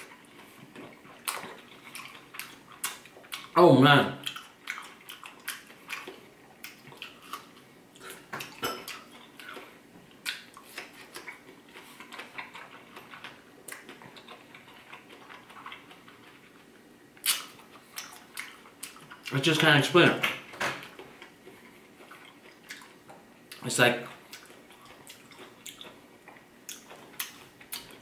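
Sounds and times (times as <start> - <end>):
chewing crisp fruit: 0.0 - 19.8, 20.8 - 28.0.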